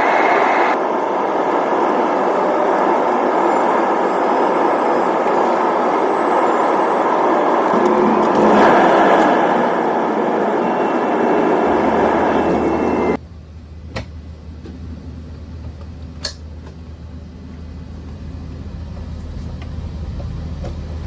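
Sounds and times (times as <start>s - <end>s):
loud rushing vehicle noise: 5.6s - 13.3s.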